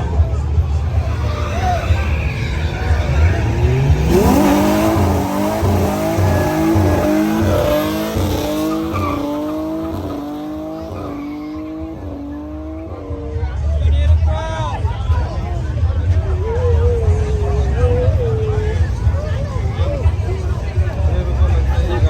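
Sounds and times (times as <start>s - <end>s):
car engine revving: 0.6s - 13.7s.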